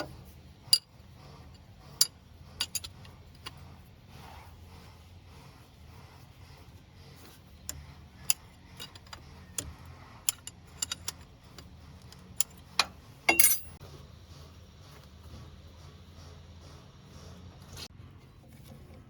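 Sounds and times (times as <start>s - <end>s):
metallic clicks of hand tools: 7.7s - 13.7s
metal clattering clink: 12.8s - 13.8s.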